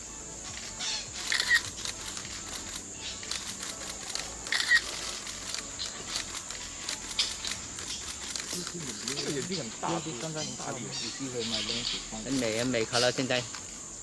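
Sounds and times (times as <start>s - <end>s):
high-pitched insect drone: 0.0s - 14.0s
camera shutter bursts: 1.2s - 9.6s.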